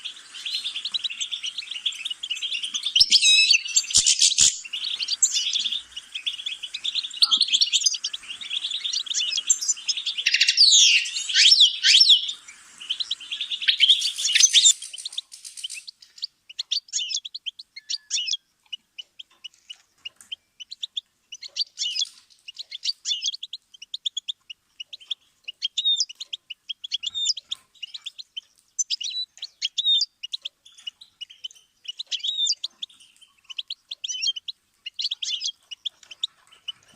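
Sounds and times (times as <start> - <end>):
songbird singing: 0.0 - 36.9.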